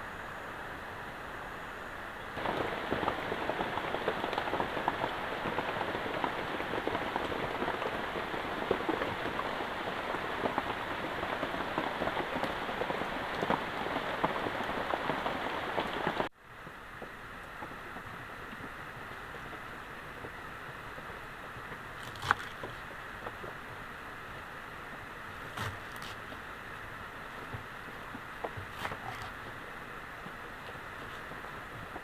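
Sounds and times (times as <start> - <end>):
heavy rain falling: 2.3 - 16.3.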